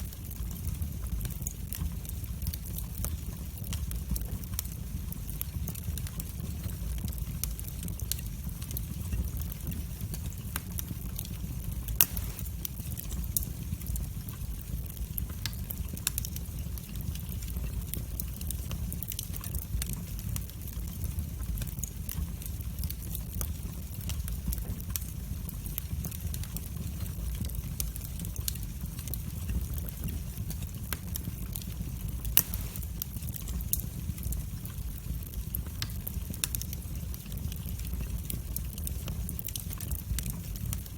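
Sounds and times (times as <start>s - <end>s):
fire crackling and popping: 0.0s - 40.9s
fire rumbling: 0.0s - 40.9s.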